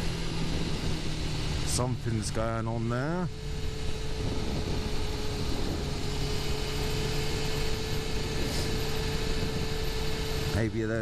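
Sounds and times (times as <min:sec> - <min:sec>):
motorcycle engine running: 0:00.0 - 0:11.0
wind noise: 0:03.4 - 0:10.6.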